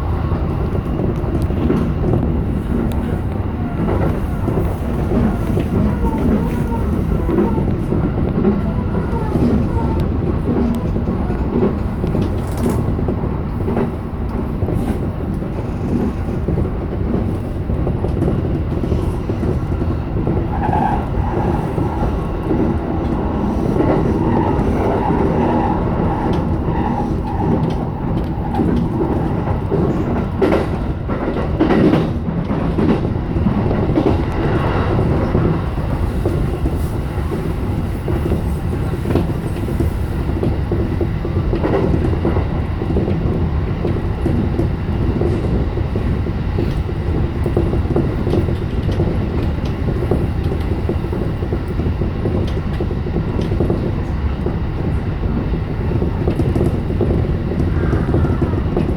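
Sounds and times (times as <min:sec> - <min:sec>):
rail joint clacks: 0:00.0 - 0:58.9
train wheels rumbling on rails: 0:00.0 - 0:58.9.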